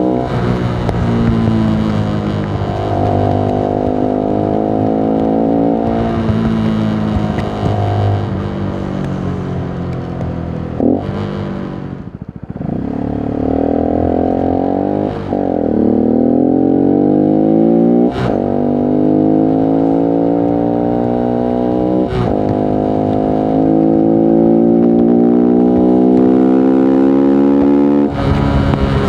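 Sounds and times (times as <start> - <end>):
motorcycle engine accelerating: 0.0 - 29.0.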